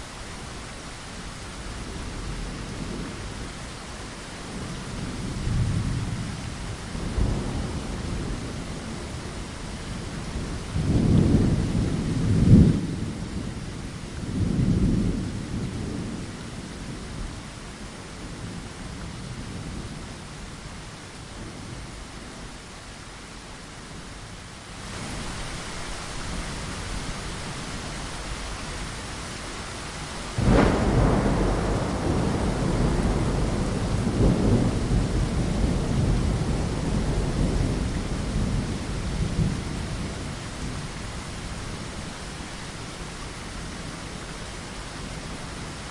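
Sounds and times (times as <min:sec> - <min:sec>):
rain against a window: 0:00.0 - 0:45.9
low thunder rumbles: 0:04.4 - 0:17.4, 0:29.9 - 0:42.8
thunderclap: 0:30.4 - 0:39.5.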